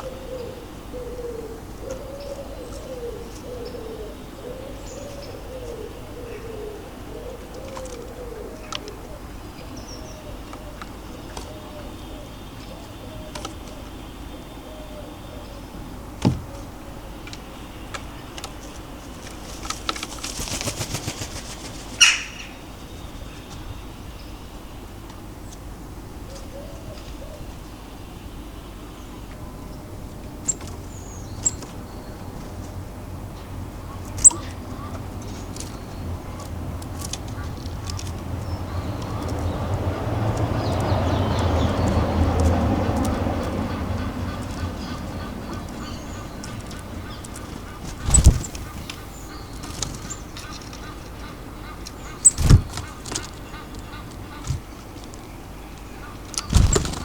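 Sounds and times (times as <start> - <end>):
small birds chirping: 0.0 - 57.0
passing vehicle rumble: 36.1 - 50.1.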